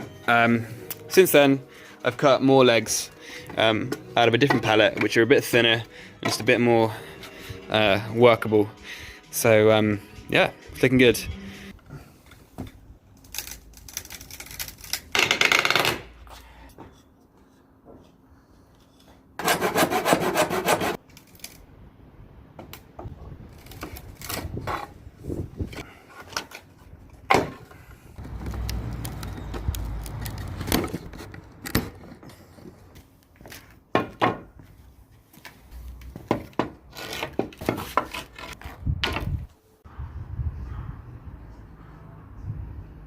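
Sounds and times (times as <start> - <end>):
hand saw sawing wood: 19.4 - 21.0.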